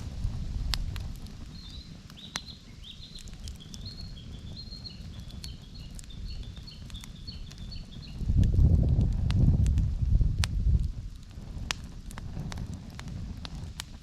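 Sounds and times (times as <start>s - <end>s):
campfire crackling and popping: 0.0s - 14.0s
low rumble: 8.2s - 12.6s.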